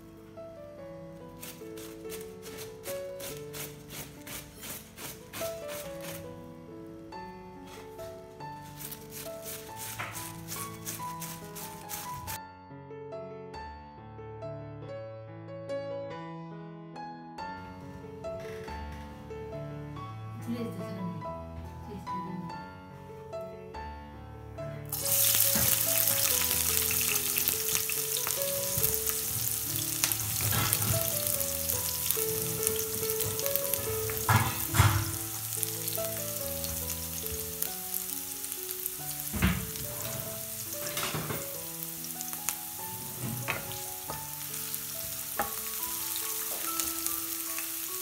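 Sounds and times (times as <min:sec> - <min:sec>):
wooden spatula scraping a pan: 0:01.5 - 0:06.3, 0:07.6 - 0:12.4, 0:24.9 - 0:36.5, 0:42.8 - 0:44.5
vegetables sizzling in hot oil: 0:08.7 - 0:12.4, 0:24.9 - 0:48.0.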